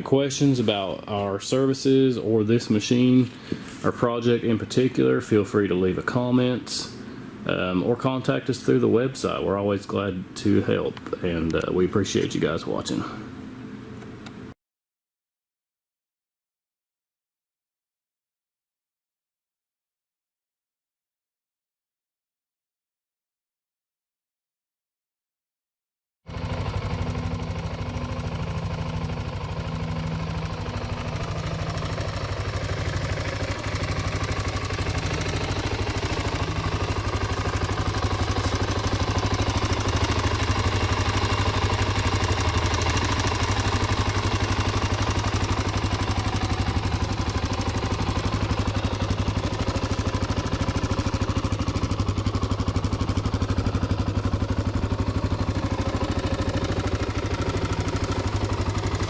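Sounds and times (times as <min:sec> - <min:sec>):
motorcycle engine idling: 0:26.3 - 0:59.0.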